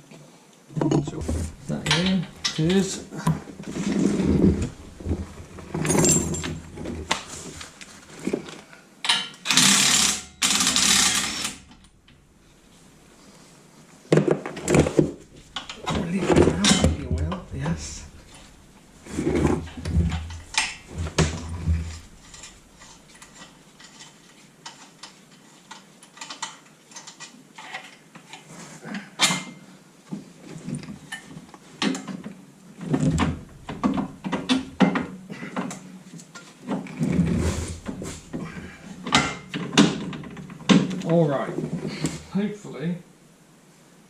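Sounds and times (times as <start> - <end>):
metal car parts clunking: 0.8 - 8.0, 14.3 - 24.2, 32.8 - 35.8, 36.4 - 41.0
hand tools clicking and knocking: 0.8 - 12.2, 14.2 - 28.0, 33.0 - 41.2.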